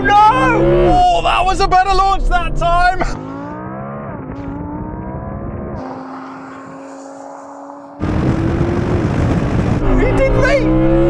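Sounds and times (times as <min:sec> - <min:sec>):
car engine accelerating hard: 0:00.0 - 0:11.0
rushing noise: 0:05.8 - 0:10.0.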